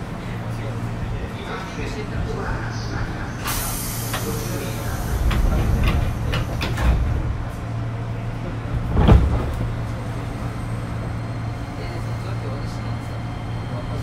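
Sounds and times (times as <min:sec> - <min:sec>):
train cabin motor hum: 0:00.0 - 0:11.8
hiss: 0:03.4 - 0:05.4.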